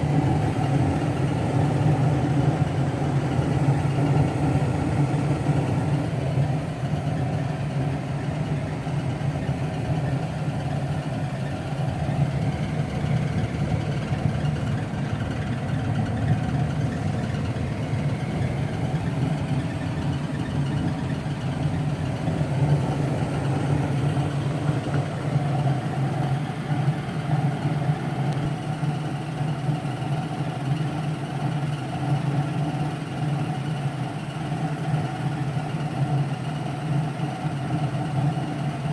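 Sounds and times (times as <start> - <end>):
gas furnace humming: 0.0 - 29.6.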